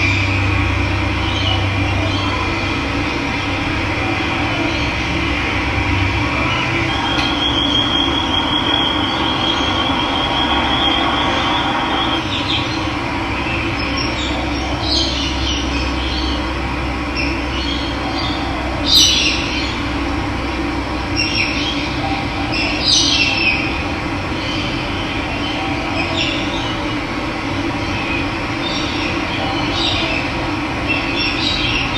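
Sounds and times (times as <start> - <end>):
birds calling: 0.0 - 20.1, 21.0 - 31.9
water rushing: 1.6 - 13.3.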